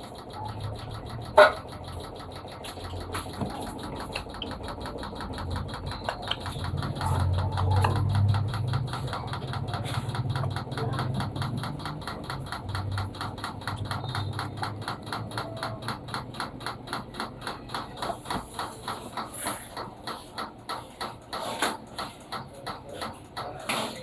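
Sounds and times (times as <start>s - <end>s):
low motor hum: 0.0s - 16.9s
washing machine running: 0.0s - 24.0s.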